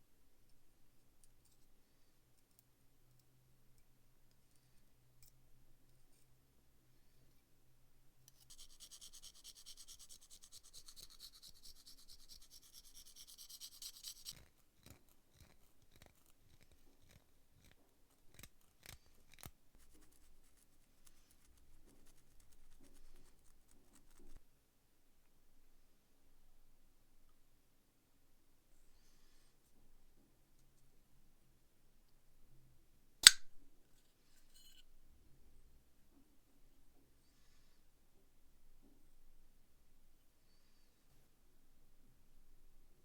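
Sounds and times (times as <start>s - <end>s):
scratchy brushing or scraping: 8.4s - 14.5s, 19.8s - 24.4s
sharp clicks and taps: 33.2s - 33.5s.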